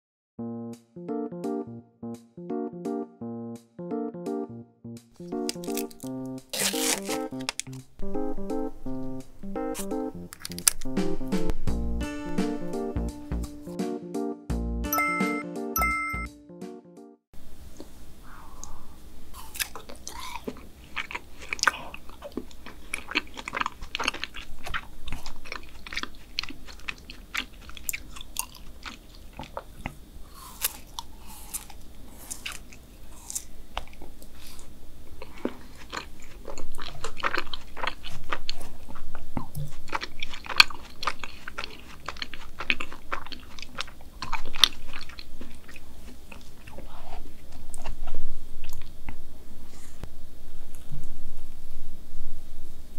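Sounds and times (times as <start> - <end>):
biting and chewing frozen ice bar: 5.2 - 7.8, 9.8 - 11.0, 19.4 - 48.9.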